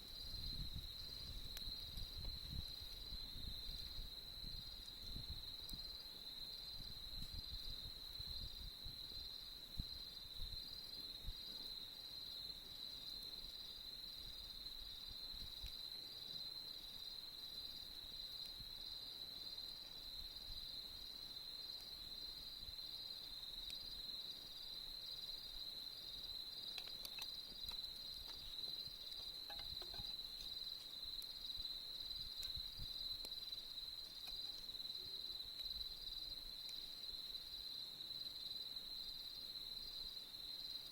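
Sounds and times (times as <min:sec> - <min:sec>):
crickets trilling: 0:00.0 - 0:40.9
faint campfire crackles: 0:00.0 - 0:40.9.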